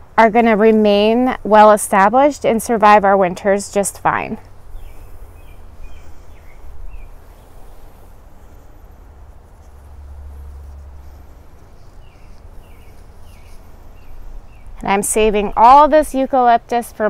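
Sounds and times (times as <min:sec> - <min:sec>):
bird chirping: 0:04.4 - 0:16.2.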